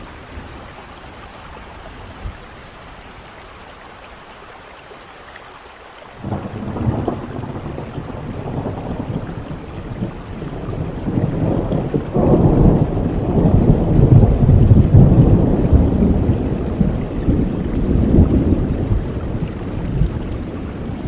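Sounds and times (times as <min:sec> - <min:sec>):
steady rain: 0:00.0 - 0:21.0
thunder rumbling: 0:06.2 - 0:21.0.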